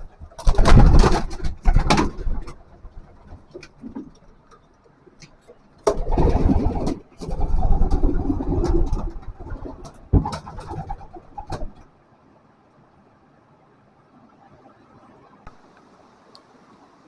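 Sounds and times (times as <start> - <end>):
pigeons cooing: 0.0 - 4.6, 5.4 - 11.9
rustling noise: 0.0 - 11.9.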